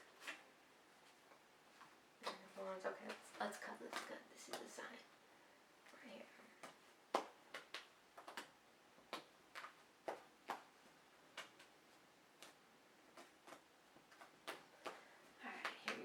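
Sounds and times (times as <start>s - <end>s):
cards clicking and tapping: 1.8s - 4.7s, 6.6s - 11.8s, 12.4s - 16.0s.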